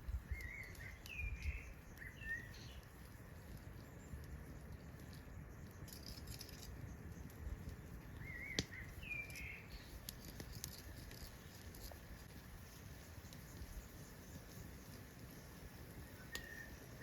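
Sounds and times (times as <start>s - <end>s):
bird warbling chirps: 0.3s - 2.8s, 8.2s - 10.0s
faint ticks: 0.3s - 16.8s.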